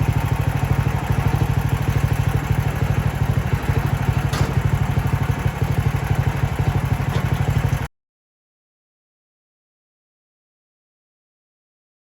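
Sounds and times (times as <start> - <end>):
sawmill gasoline engine running: 0.0 - 7.9.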